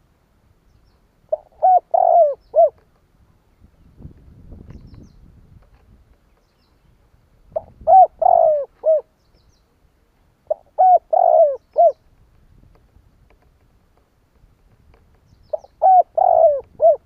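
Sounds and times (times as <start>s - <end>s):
dove cooing: 1.3s - 2.8s, 7.5s - 9.1s, 10.5s - 12.0s, 15.5s - 17.0s.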